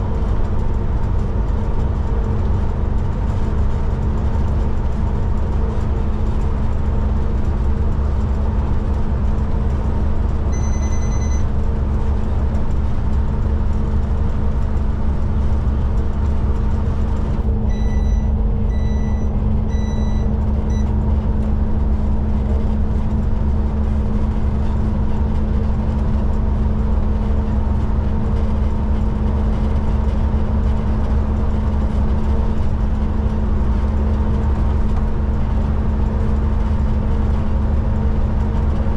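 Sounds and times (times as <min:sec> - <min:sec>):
diesel truck engine droning: 0:00.0 - 0:38.9
electronic beeps: 0:10.6 - 0:11.4, 0:17.7 - 0:20.9.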